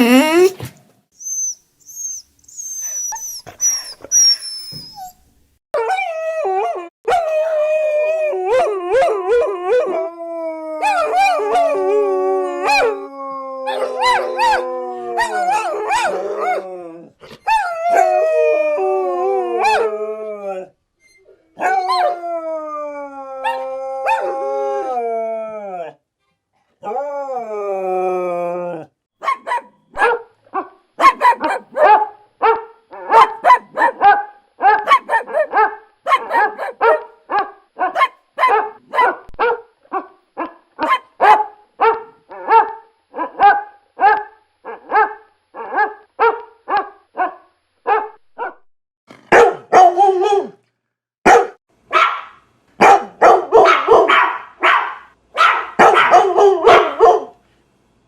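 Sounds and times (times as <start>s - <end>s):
dog barking: 29.2s - 48.6s, 49.3s - 50.6s, 51.3s - 57.4s.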